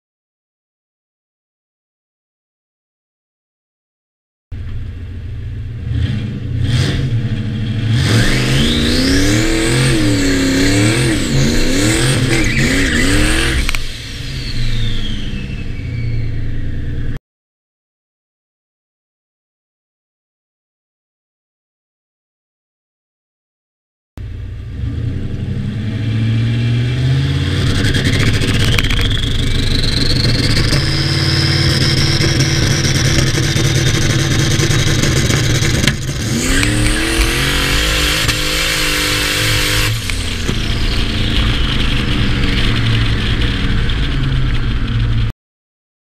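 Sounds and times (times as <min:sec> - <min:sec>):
car engine revving: 0:04.6 - 0:17.2, 0:24.2 - 0:45.3
turbo whine: 0:08.0 - 0:17.2, 0:27.1 - 0:45.3
sharp crack: 0:28.1 - 0:45.3.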